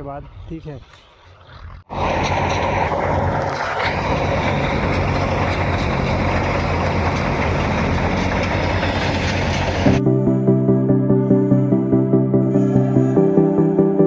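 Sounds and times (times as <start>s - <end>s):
cutting and threshing machinery: 0.0s - 10.0s
combine harvester engine drone: 1.9s - 14.0s.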